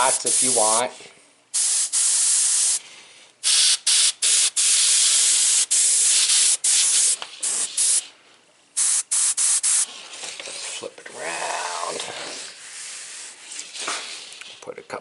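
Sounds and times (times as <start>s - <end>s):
airbrush spraying hiss: 0.0s - 2.8s, 3.4s - 8.1s, 8.8s - 9.9s.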